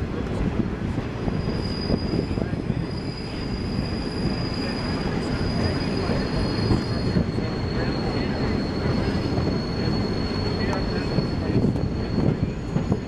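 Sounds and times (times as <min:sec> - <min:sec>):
train rumbling on track: 0:00.0 - 0:13.0
high-pitched wheel squeal: 0:01.2 - 0:13.0.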